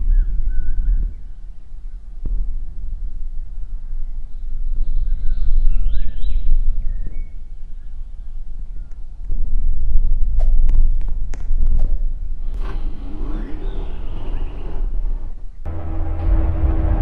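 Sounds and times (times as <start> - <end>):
light-rail train rumble: 12.4 - 17.0.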